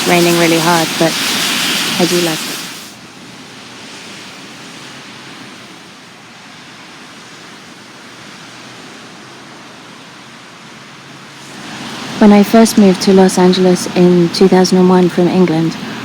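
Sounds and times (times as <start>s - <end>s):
heavy rain falling: 0.0s - 6.4s, 11.2s - 16.0s.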